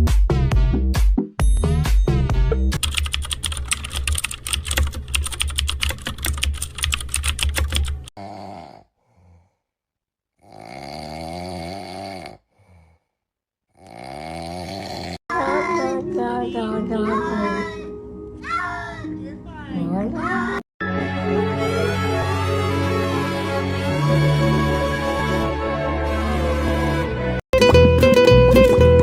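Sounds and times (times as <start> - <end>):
fast keyboard typing: 2.8 - 8.1
person snoring: 8.2 - 9.7, 10.4 - 15.2.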